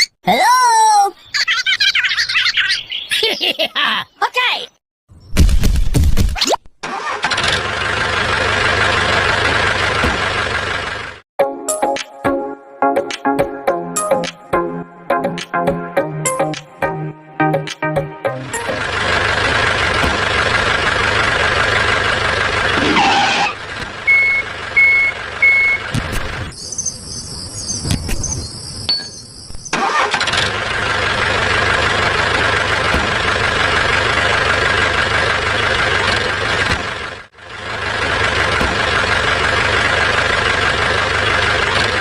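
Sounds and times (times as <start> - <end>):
short beeps: 24.1 - 25.9.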